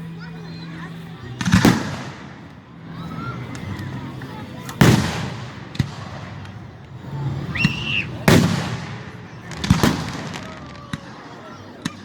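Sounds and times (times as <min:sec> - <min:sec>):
firework crack: 0:01.2 - 0:12.0
firework high whistle: 0:07.3 - 0:09.1.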